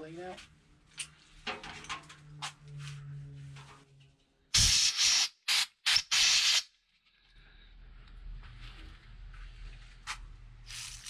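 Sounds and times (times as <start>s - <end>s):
pressurised spray hissing: 4.6s - 6.7s.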